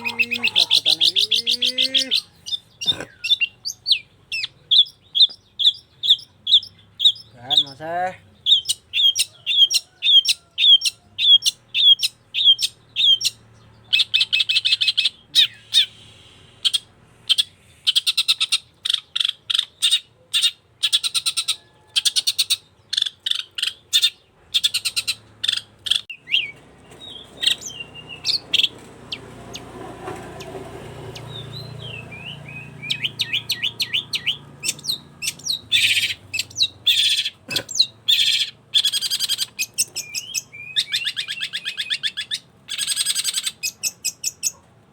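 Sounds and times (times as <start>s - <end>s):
shrike singing: 0.0s - 16.4s, 30.4s - 44.5s
harsh bird chattering: 0.0s - 29.8s, 30.4s - 44.7s.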